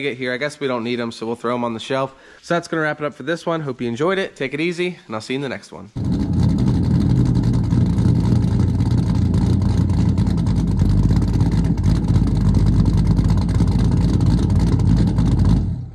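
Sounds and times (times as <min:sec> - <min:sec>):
vehicle engine running: 0:06.0 - 0:15.9.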